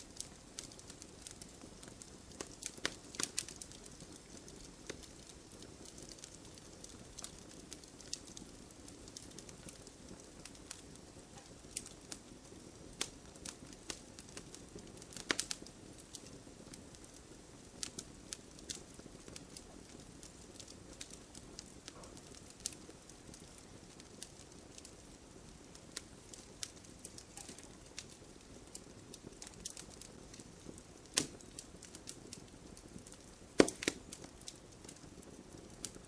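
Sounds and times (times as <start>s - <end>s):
flames hissing: 0.0s - 36.0s
wood fire crackling: 0.0s - 36.0s
sharp pops and snaps: 0.6s - 4.0s, 15.1s - 16.3s, 26.6s - 28.1s, 30.7s - 31.9s, 33.1s - 35.0s.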